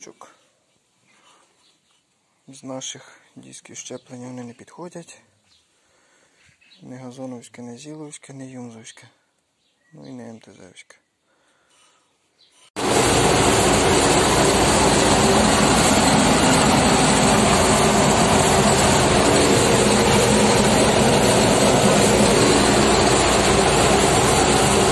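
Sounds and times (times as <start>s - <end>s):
combine harvester running: 12.8s - 24.9s.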